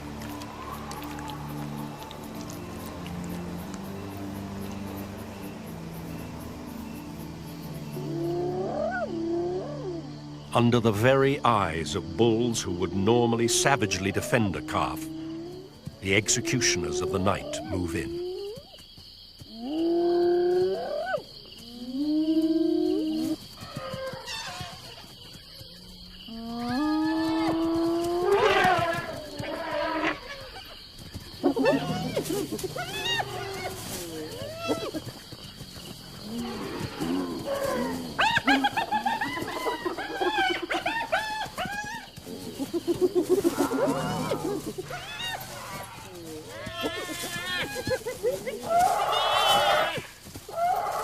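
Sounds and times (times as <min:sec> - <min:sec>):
predators crying: 0:08.0 - 0:10.1, 0:26.3 - 0:30.8, 0:31.4 - 0:35.1, 0:36.2 - 0:51.0.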